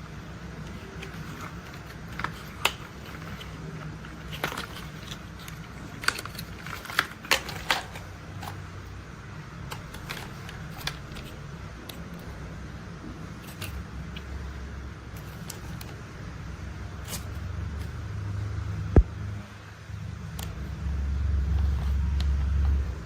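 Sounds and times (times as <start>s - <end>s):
low steady hum: 0.0s - 23.0s
plastic toy parts clicking: 0.6s - 8.6s, 13.4s - 14.3s.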